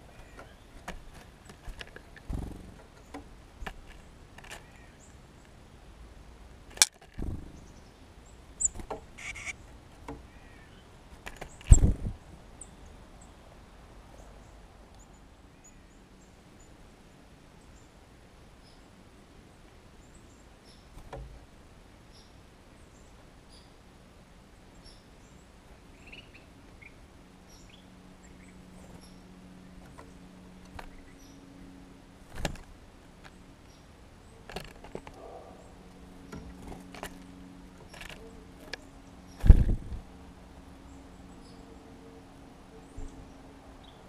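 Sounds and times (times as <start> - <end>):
low steady hum: 0.0 - 44.0
small bird chirping: 7.2 - 9.6, 24.7 - 31.5.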